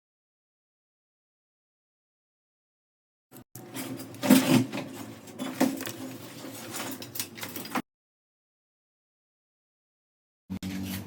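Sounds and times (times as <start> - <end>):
workshop machinery humming: 3.6 - 7.8.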